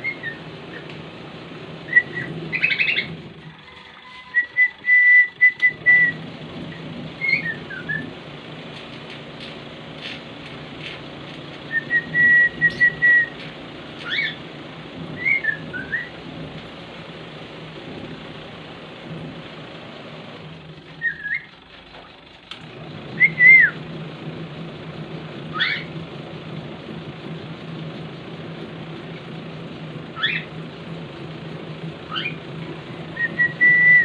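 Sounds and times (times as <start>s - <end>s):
cockatiel whistling: 0.0s - 0.9s, 1.9s - 3.1s, 4.1s - 6.2s, 7.2s - 8.1s, 11.7s - 13.4s, 14.0s - 14.4s, 15.2s - 16.1s, 21.0s - 21.5s, 23.2s - 23.8s, 25.5s - 25.9s, 30.2s - 30.5s, 32.1s - 32.4s, 33.1s - 34.0s
steady low hum: 0.0s - 34.0s.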